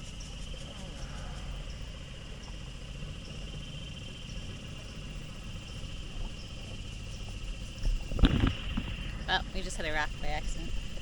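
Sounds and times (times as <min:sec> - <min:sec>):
insects buzzing: 0:00.0 - 0:11.0
outboard motor running: 0:00.0 - 0:11.0.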